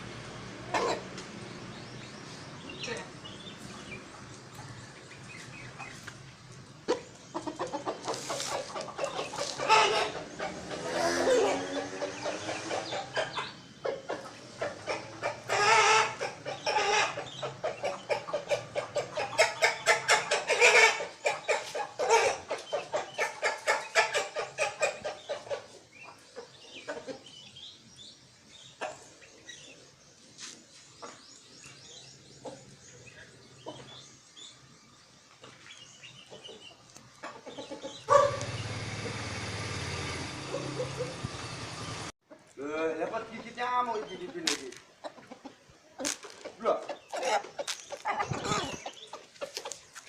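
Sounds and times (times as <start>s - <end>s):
rooster clucking: 0.6s - 1.2s, 6.9s - 27.4s, 44.2s - 50.0s.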